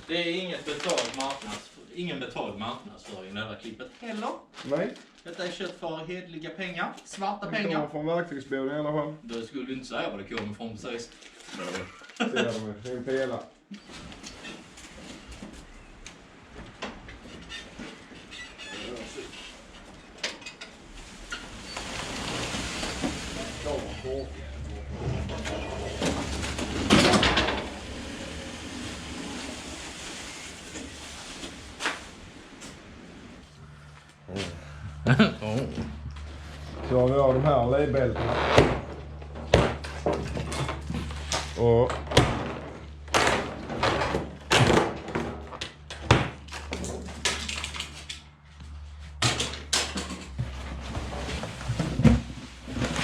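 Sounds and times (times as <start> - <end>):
objects rattling: 0.6 - 1.6, 16.3 - 33.2, 38.0 - 48.4
steady low hum: 32.0 - 45.0
knocks thuds and scraping: 38.2 - 47.5.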